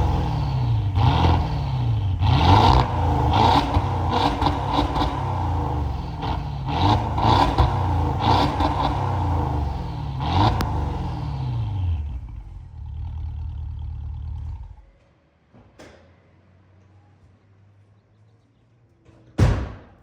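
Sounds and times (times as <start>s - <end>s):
car engine revving: 0.0s - 14.8s.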